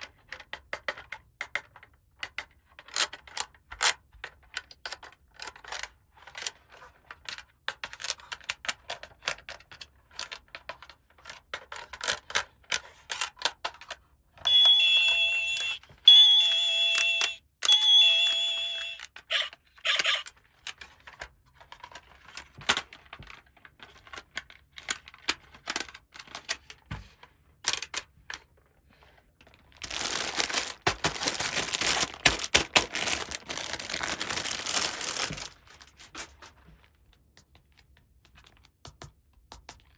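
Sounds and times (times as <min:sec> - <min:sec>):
electronic beeping tune: 0:14.5 - 0:19.0
plastic toy parts clicking: 0:16.8 - 0:26.7, 0:27.6 - 0:28.4, 0:29.7 - 0:36.3
plastic packaging rustling: 0:29.4 - 0:36.6.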